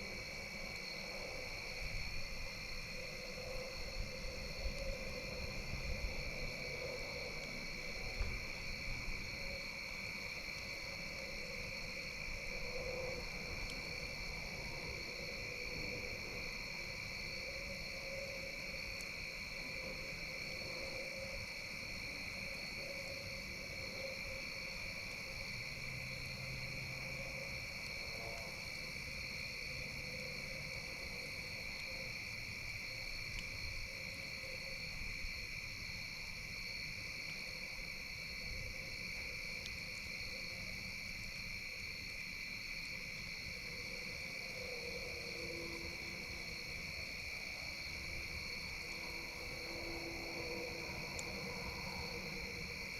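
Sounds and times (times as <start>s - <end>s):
crickets trilling: 0.0s - 52.9s
faint campfire ticks: 13.6s - 13.9s, 33.2s - 33.6s, 39.6s - 40.1s.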